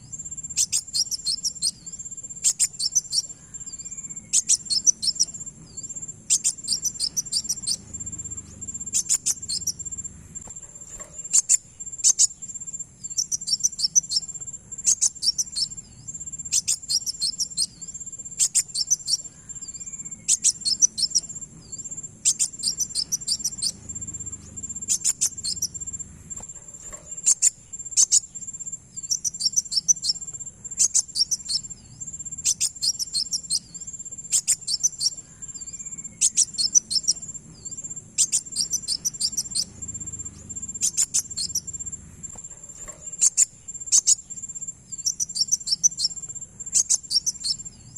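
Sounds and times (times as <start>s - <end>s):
sunbird chittering: 0.0s - 47.9s.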